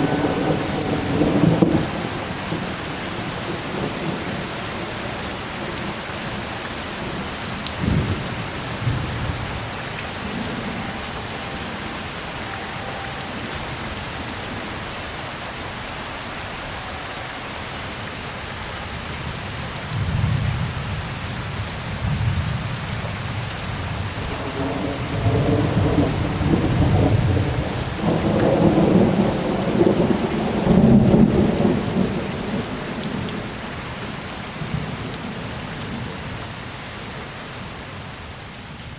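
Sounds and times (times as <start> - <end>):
thunder rumbling: 0.0 - 15.0, 19.8 - 33.7
rain falling: 0.0 - 38.9.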